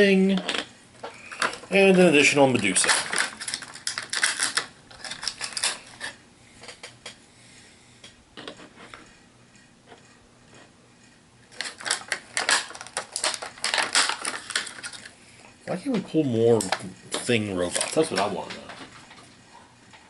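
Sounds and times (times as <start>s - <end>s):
plastic pieces clicking and clattering: 0.3s - 7.2s, 11.5s - 15.1s, 16.6s - 19.2s.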